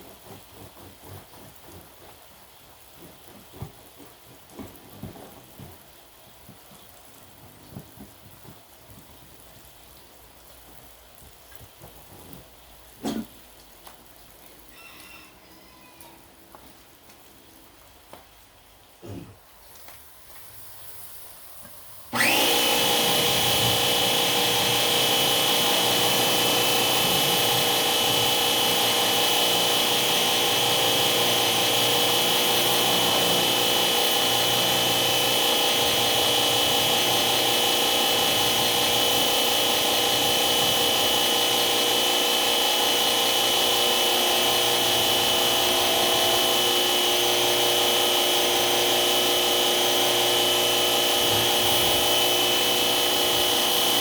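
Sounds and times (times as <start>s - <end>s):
electric motor whining: 22.2s - 54.0s.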